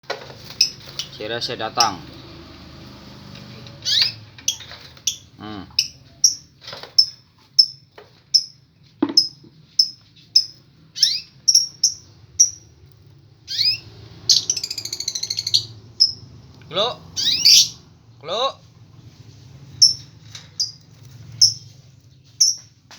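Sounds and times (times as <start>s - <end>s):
small bird chirping: 0.4s - 2.2s, 3.6s - 17.9s, 19.0s - 22.8s
bird warbling trill: 3.8s - 7.8s, 9.2s - 12.7s, 13.5s - 16.3s, 17.2s - 17.8s.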